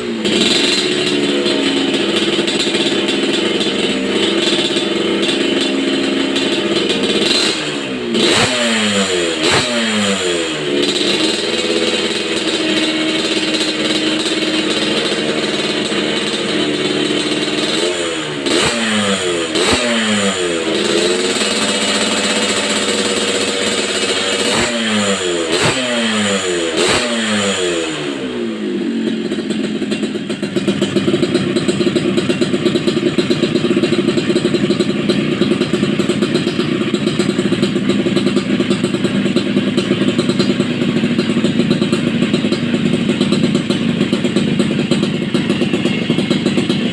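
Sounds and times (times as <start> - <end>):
two-stroke engine revving: 0.0 - 46.9.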